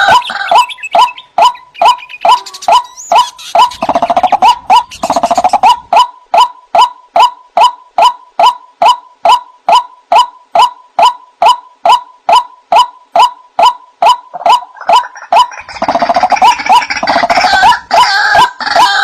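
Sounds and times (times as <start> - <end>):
waterhen harsh calls: 0.0 - 7.3.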